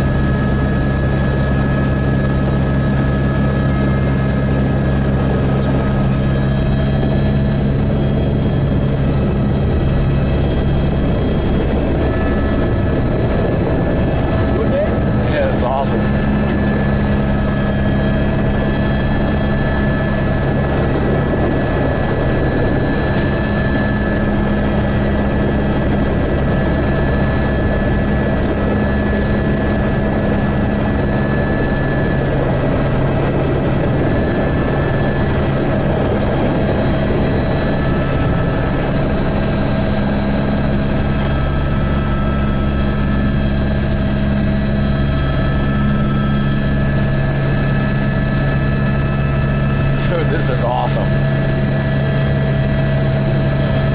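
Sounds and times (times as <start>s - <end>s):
helicopter engine and rotors drone: 0.0s - 53.9s.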